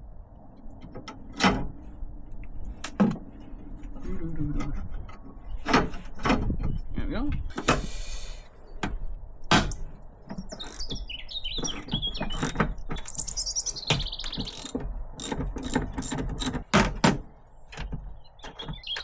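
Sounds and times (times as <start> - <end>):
songbird singing: 6.5 - 15.8, 17.5 - 19.0
hand tools clicking and knocking: 8.8 - 19.0.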